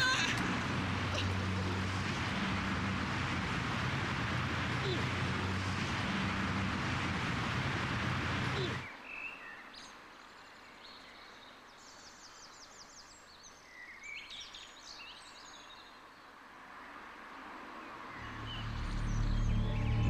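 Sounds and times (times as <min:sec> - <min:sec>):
loud rushing noise with hum: 0:00.0 - 0:08.9, 0:18.2 - 0:20.0.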